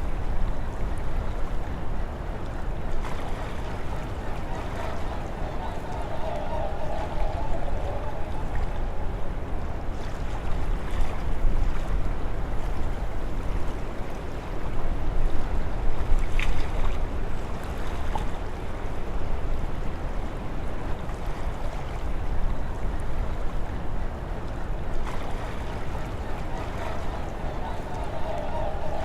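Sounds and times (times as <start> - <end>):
lake water rushing: 0.0 - 29.0
wind buffeting microphone: 2.8 - 17.4
wind rushing: 4.3 - 9.9.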